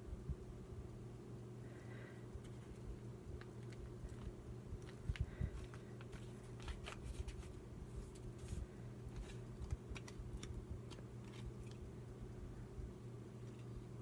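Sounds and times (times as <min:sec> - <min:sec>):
steady low hum: 0:00.0 - 0:14.0
paper rustling and clicking: 0:03.4 - 0:11.8.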